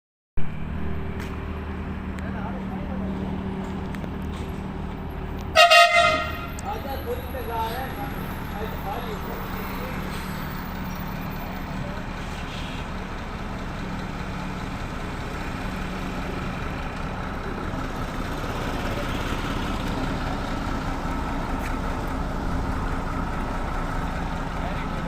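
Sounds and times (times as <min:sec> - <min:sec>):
large vehicle engine humming: 0:00.4 - 0:25.0.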